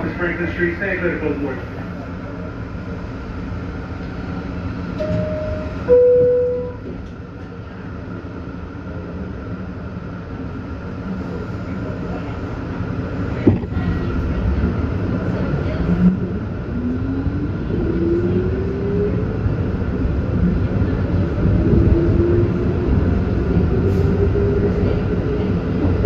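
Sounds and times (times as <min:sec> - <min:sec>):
subway car rumble: 0:00.0 - 0:26.0
two-note door chime: 0:05.0 - 0:06.8.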